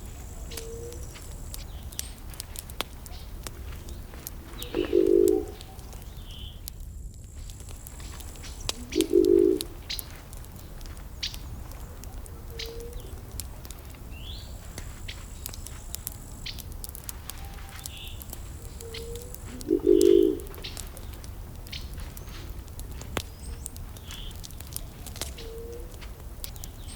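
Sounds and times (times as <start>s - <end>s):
low bird calls: 0.0s - 6.8s, 7.4s - 26.9s
campfire crackling: 0.0s - 26.9s
high bird chirps: 4.6s - 6.6s, 18.8s - 22.5s.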